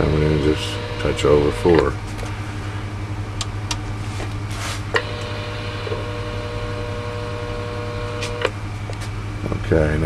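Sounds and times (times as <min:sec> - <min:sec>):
buzzing hum: 0:00.0 - 0:10.0
electrical hum: 0:00.0 - 0:10.0
switch clicks: 0:03.4 - 0:03.8.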